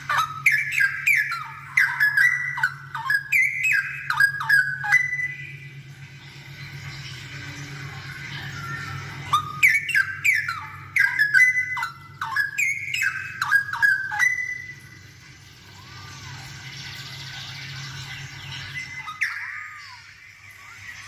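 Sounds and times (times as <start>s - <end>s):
bird singing whistled notes: 0.0s - 5.8s, 8.4s - 15.0s
steady low hum: 0.0s - 21.0s.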